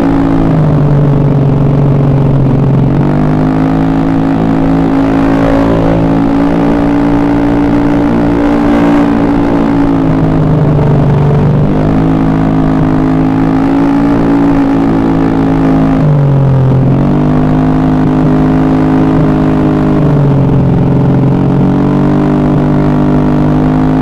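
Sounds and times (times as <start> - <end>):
scooter engine running: 0.0 - 17.4.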